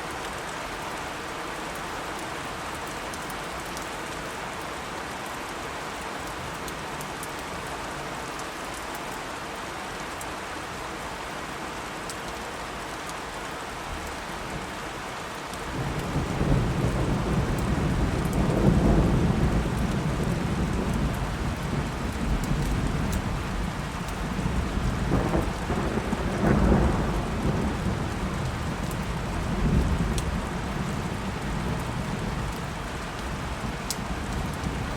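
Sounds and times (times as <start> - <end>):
steady rain: 0.0 - 34.9
thunder rumbling: 15.7 - 34.9.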